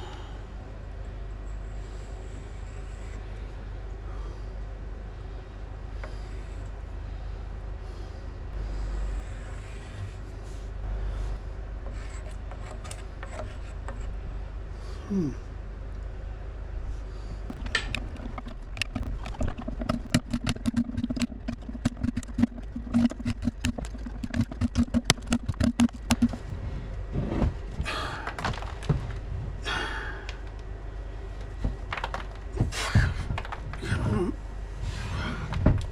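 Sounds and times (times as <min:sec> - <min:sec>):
low steady hum: 0:00.0 - 0:35.9
sharp taps and knocks: 0:17.5 - 0:26.4
scraping rustling noises: 0:17.5 - 0:27.8.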